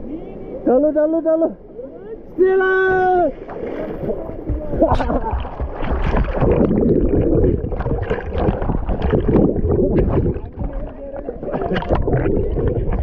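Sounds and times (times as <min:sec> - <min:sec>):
water splashing from swimming: 0:03.3 - 0:13.0.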